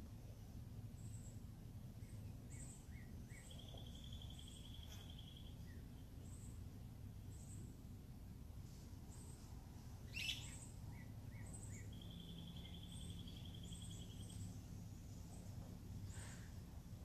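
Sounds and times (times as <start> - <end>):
low steady background hum: 0.0 - 17.0
songbirds chirping: 0.0 - 17.0
bird trill: 2.0 - 6.6, 10.1 - 14.6.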